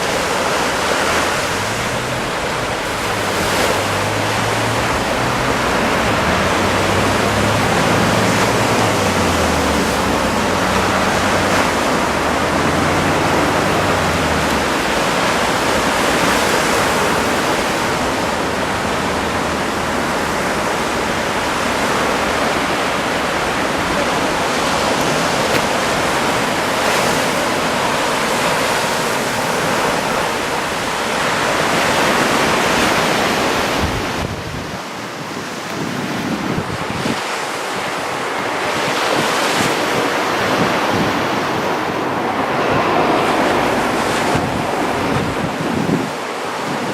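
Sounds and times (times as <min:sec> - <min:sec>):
small waves washing on sand: 0:00.0 - 0:46.9.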